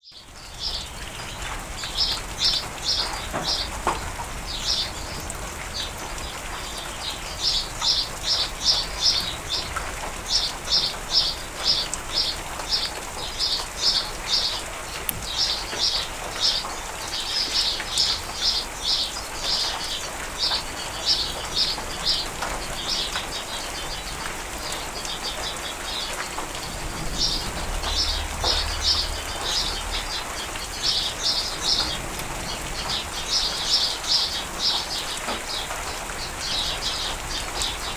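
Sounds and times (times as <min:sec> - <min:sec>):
steady rain: 0:00.0 - 0:37.9
faint low rumble: 0:26.6 - 0:31.4.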